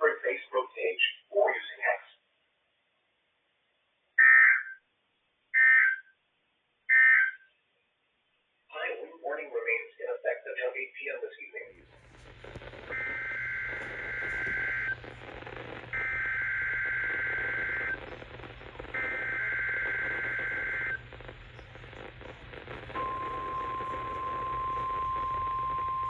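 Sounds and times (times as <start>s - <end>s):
radio hiss: 8.8s - 26.0s
single-pitch warning alarm tone: 12.9s - 15.0s, 23.0s - 26.0s.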